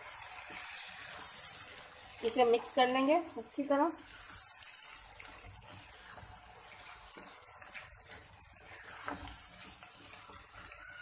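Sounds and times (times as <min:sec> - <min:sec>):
curry sizzling in oil: 0:00.0 - 0:11.0
spoon scraping pan: 0:04.0 - 0:11.0.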